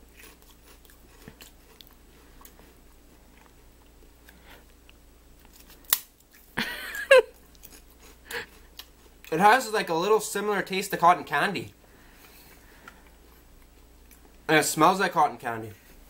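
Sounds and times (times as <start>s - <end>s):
person chewing crunchy snack: 0.0s - 6.5s, 7.4s - 9.3s
sharp crack: 5.5s - 6.3s.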